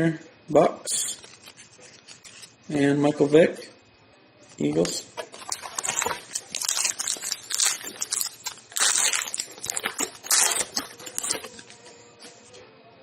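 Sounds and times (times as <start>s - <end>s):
plastic wrapper crinkling and tearing: 1.0s - 2.5s, 4.6s - 11.9s.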